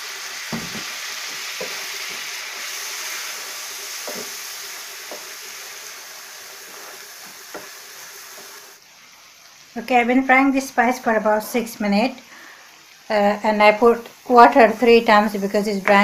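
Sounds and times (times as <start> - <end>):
spice paste sizzling in a frying pan: 0.0 - 16.0
spoon scraping a pan: 1.5 - 5.6, 6.5 - 8.7.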